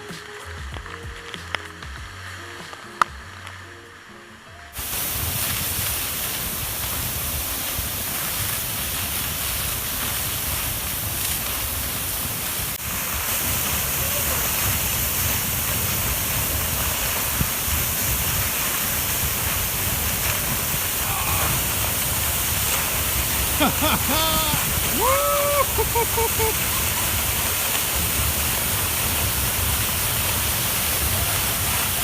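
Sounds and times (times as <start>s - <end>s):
waterfall rushing: 4.8s - 32.0s
faint voices: 20.9s - 22.0s, 23.4s - 27.9s.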